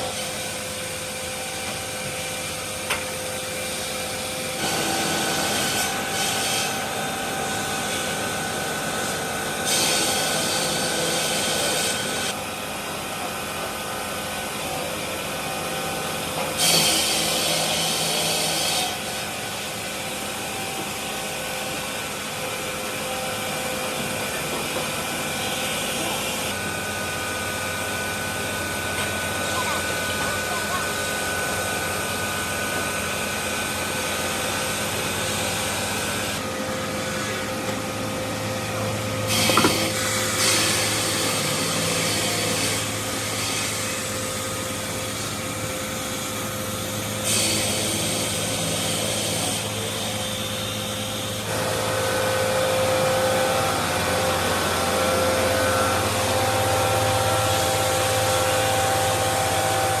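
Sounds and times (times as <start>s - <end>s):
machinery humming: 17.2s - 60.0s
thin machine whine: 18.9s - 60.0s.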